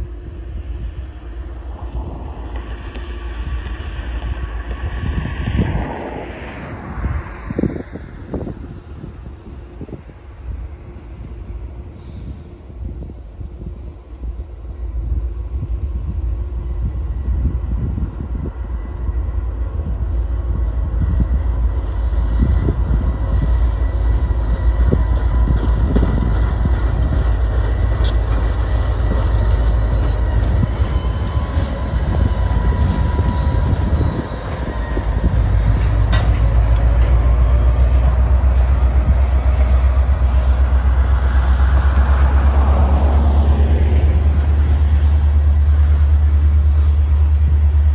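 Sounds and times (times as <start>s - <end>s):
train rumbling on rails: 0.0s - 47.9s
wheels whining: 16.8s - 47.9s.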